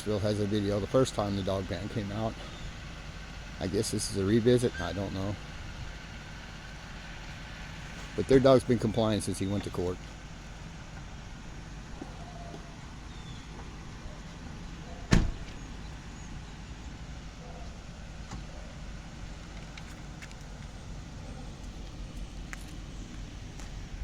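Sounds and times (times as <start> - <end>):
motor vehicle rumbling: 0.0 - 24.0
sharp thump: 15.1 - 15.6.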